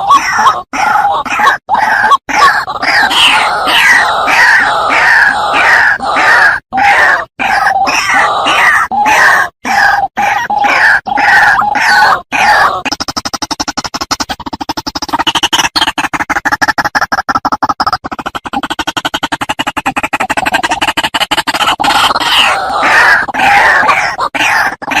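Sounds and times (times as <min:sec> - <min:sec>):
waterhen croaking calls: 0:00.0 - 0:25.0
bird rattling pulses: 0:09.7 - 0:25.0.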